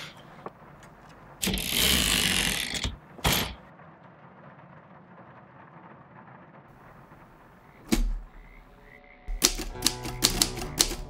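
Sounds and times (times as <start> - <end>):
music: 9.3 - 11.0
typewriter keys clacking: 9.3 - 11.0.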